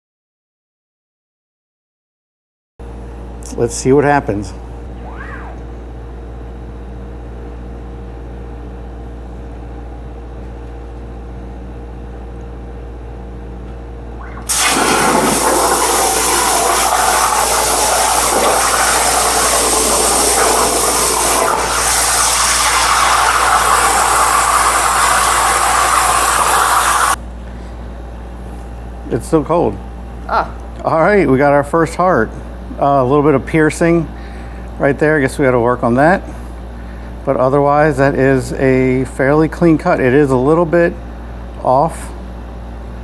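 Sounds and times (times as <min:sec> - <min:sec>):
plasma arc cutting hiss: 0:14.4 - 0:27.2.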